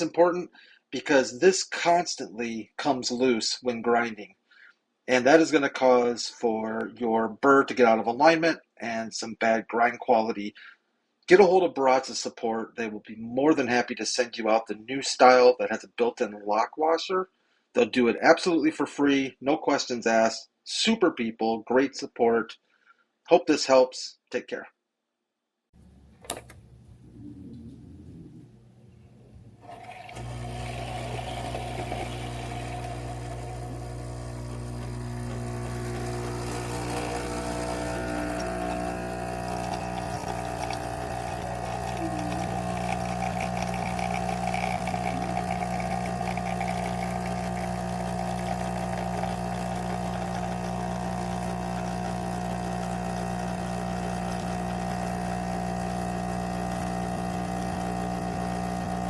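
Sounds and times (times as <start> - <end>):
coffee grinder running: 29.6 - 59.0.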